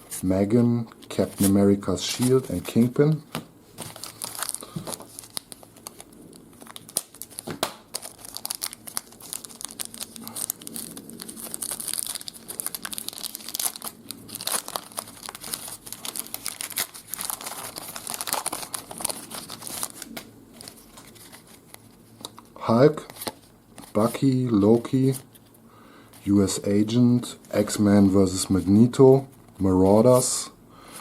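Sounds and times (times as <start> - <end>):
wrapper tearing and crinkling: 3.8 - 24.0.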